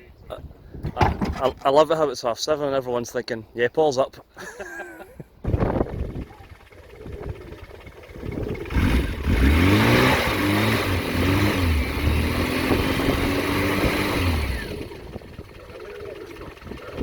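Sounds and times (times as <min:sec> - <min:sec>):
car engine revving: 0:06.9 - 0:17.0.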